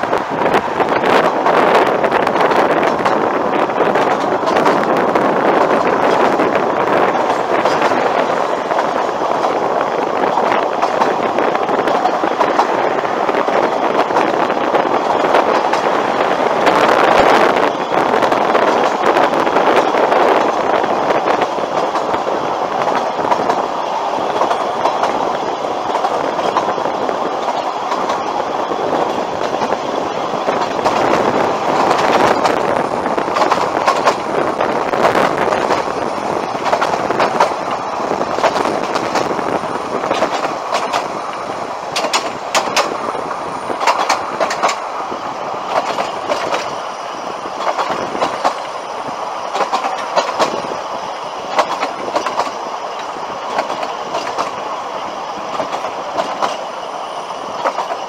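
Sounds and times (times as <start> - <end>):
train carriage rumbling and rattling: 0.0 - 58.0
wheel clicks over rail joints: 0.0 - 58.0
sharp clicks: 33.2 - 34.3, 40.1 - 43.0, 43.8 - 44.9, 45.7 - 46.7, 47.6 - 48.7, 49.5 - 50.6, 51.5 - 54.6.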